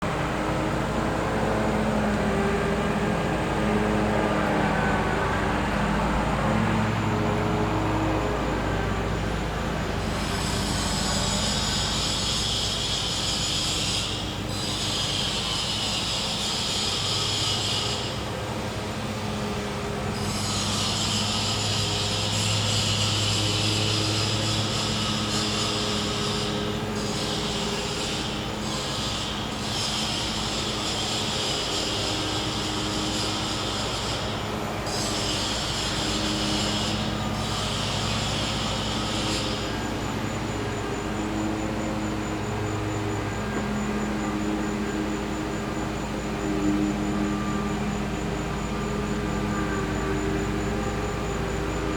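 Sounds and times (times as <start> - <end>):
generator humming: 0.0 - 51.9
insect buzzing: 10.0 - 18.2, 20.2 - 51.9.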